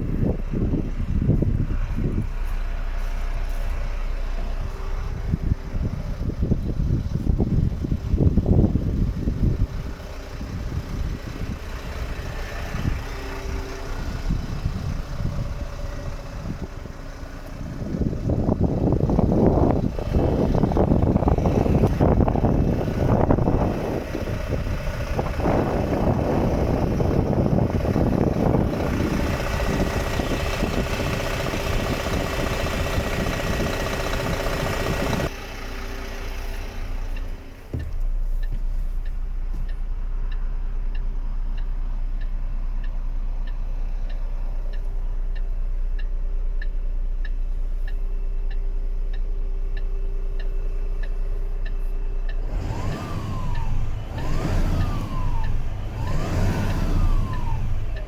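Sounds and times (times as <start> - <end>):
truck diesel engine idling: 0.0 - 58.0
faint regular ticking: 36.4 - 58.0.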